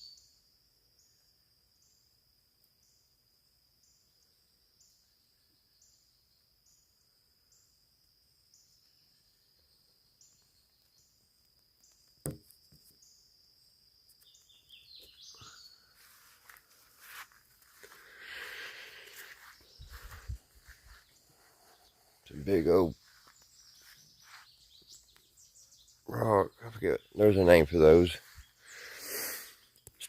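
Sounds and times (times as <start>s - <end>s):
insects chirping: 0.0s - 30.0s
short chirpy calls: 14.2s - 30.0s.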